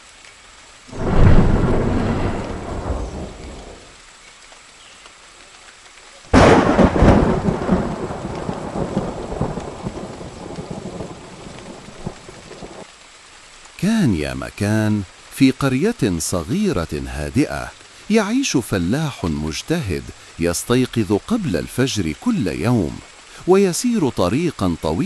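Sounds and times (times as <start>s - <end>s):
steady rain: 0.0s - 25.0s
thunder rumbling and cracking: 0.9s - 4.0s, 6.4s - 12.7s.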